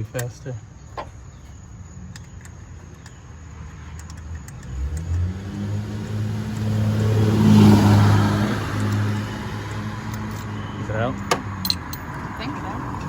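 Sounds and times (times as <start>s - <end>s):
vehicle driving past: 4.7s - 13.0s.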